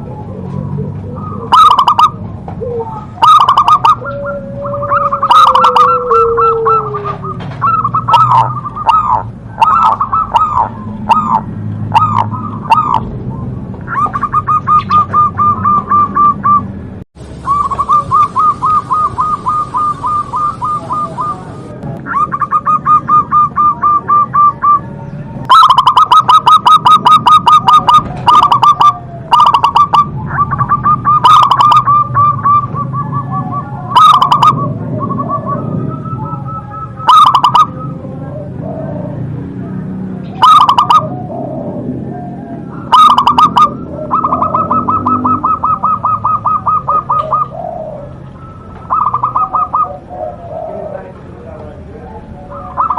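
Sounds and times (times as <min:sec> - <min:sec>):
dove cooing: 0:00.0 - 0:52.9.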